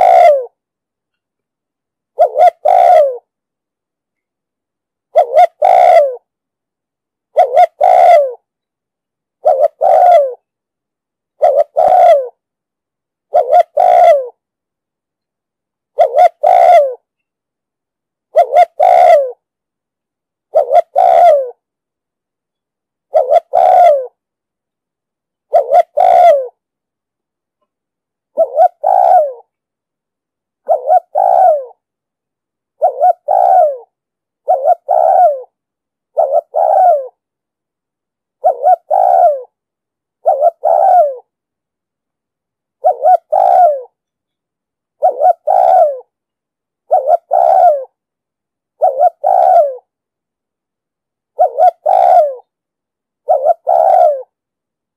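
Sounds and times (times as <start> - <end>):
dove cooing: 0.0 - 0.6, 2.1 - 3.3, 5.1 - 6.3, 7.3 - 8.5, 9.4 - 10.5, 11.4 - 12.4, 13.3 - 14.4, 15.9 - 17.1, 18.3 - 19.4, 20.5 - 21.6, 23.1 - 24.2, 25.5 - 26.6, 28.3 - 29.5, 30.6 - 31.8, 32.8 - 37.2, 38.4 - 39.6, 40.2 - 41.3, 42.8 - 44.0, 45.0 - 46.1, 46.8 - 48.0, 48.8 - 49.9, 51.4 - 52.5, 53.2 - 54.4.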